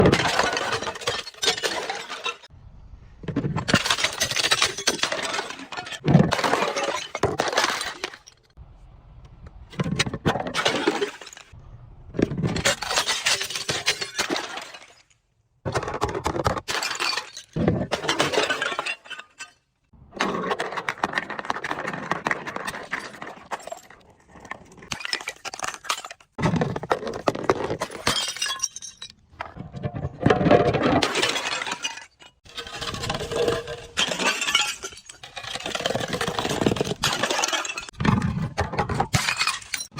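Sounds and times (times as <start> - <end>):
glass bottles breaking: 0.0 - 2.5, 3.7 - 8.5, 10.5 - 11.6, 12.5 - 15.1, 16.5 - 19.7, 24.9 - 29.2, 30.0 - 39.9.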